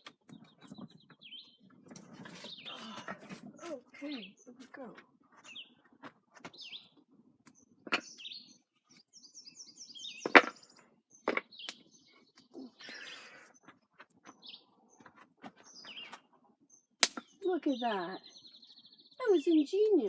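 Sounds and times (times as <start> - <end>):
small birds chirping: 0.0 - 20.0
wooden boards knocking: 10.3 - 10.6.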